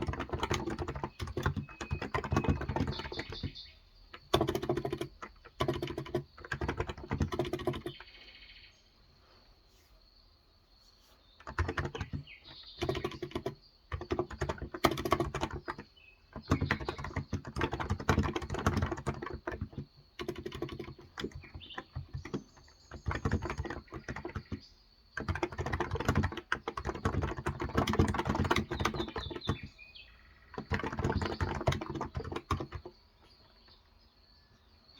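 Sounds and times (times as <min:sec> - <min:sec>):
keyboard key clicks: 0:00.0 - 0:03.6, 0:04.2 - 0:08.0, 0:11.4 - 0:15.8, 0:16.4 - 0:24.6, 0:25.2 - 0:29.7, 0:30.5 - 0:32.9
faint birds chirping: 0:00.0 - 0:34.9.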